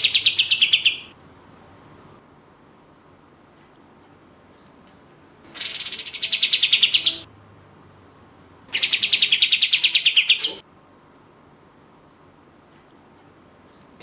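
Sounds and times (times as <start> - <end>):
bird singing rattling trills: 0.0 - 1.1, 5.6 - 7.3, 8.8 - 10.6.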